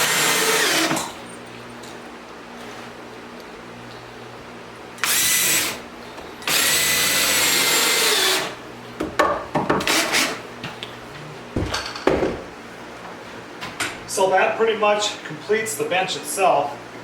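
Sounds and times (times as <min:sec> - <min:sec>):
power drill whining: 0:00.0 - 0:01.1, 0:05.0 - 0:05.8, 0:06.4 - 0:08.6
sharp knocks and clatters: 0:11.6 - 0:12.5.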